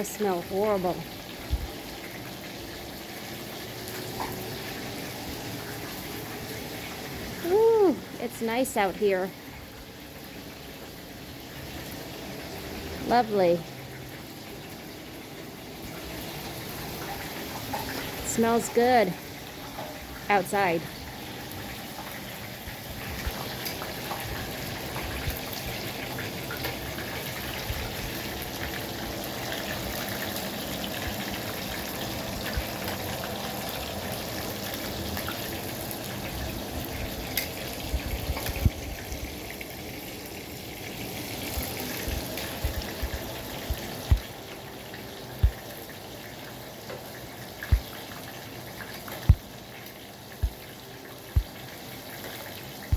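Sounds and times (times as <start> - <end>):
food sizzling in hot oil: 0.0 - 52.9
sharp pops and taps: 42.6 - 44.3, 47.7 - 47.9.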